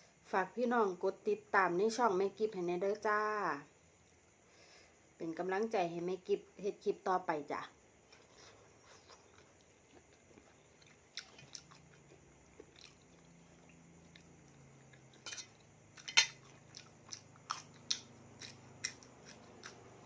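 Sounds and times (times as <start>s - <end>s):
chewing and mouth sounds: 8.4s - 15.2s, 16.0s - 19.8s.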